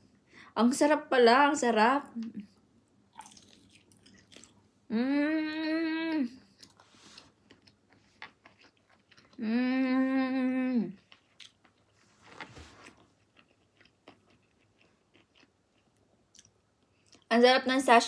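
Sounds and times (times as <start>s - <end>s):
chewing with wet mouth clicks: 3.2s - 4.6s, 7.4s - 9.4s, 13.0s - 17.3s
person humming mmm: 4.9s - 6.5s, 9.4s - 11.0s.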